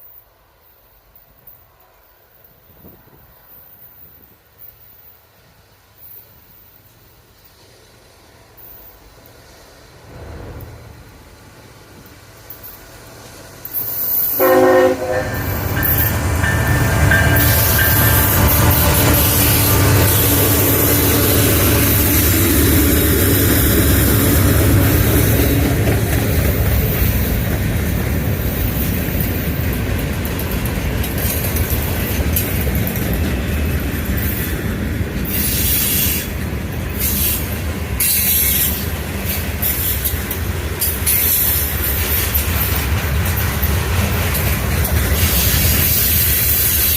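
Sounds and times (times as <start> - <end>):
train wheels squealing on rails: 0.0 - 46.9
freight cars rumbling: 8.6 - 46.9
train horn: 14.3 - 21.7.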